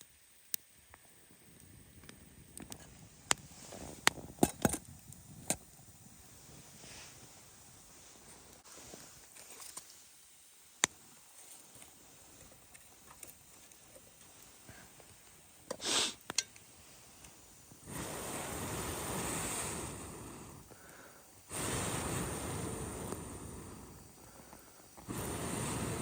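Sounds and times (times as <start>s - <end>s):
rushes of air: 17.8s - 20.7s, 21.5s - 26.0s.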